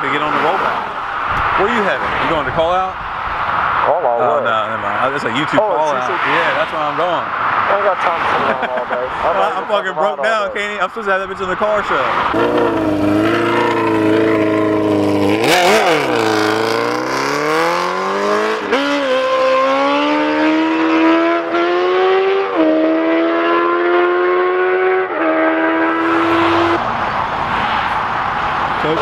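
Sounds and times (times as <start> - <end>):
vehicle engine accelerating: 11.9 - 29.0.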